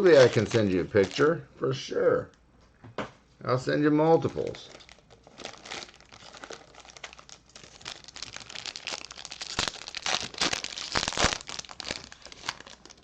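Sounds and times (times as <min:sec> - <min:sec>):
foil wrapper crinkling and tearing: 0:00.0 - 0:01.3, 0:04.2 - 0:13.0.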